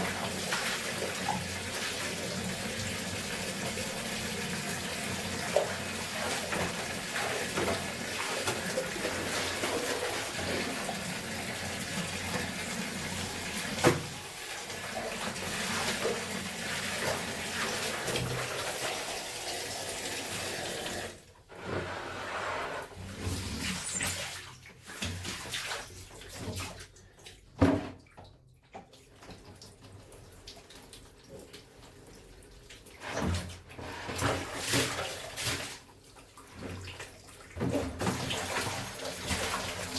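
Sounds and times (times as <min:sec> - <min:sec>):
water splashing and sloshing: 0:00.0 - 0:18.9, 0:21.2 - 0:39.9
water running from tap: 0:00.0 - 0:21.3, 0:36.6 - 0:39.9.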